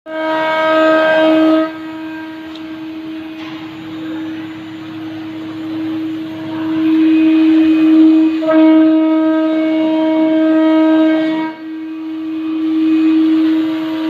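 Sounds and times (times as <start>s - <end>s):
spindle motor whine: 0.1s - 14.0s.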